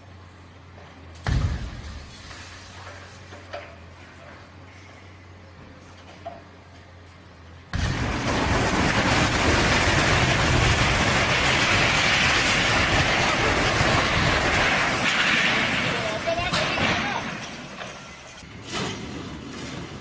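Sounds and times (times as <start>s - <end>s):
heavy vehicle rumble: 0.0s - 20.0s.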